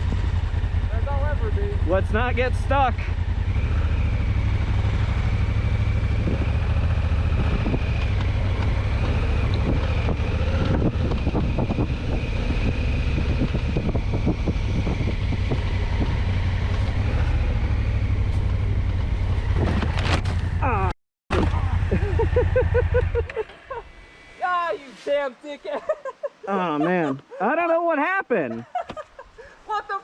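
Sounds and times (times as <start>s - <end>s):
motorcycle engine running: 0.0s - 24.2s
wind rumble on microphone: 4.3s - 20.6s.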